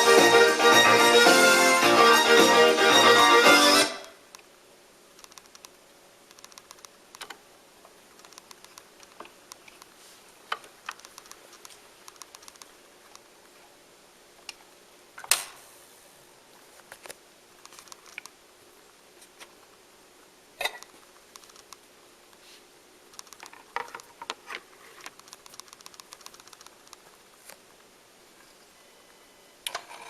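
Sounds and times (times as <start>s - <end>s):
faint steady hum: 0.0s - 30.0s
small clicks and knocks: 10.5s - 13.3s, 23.1s - 27.6s.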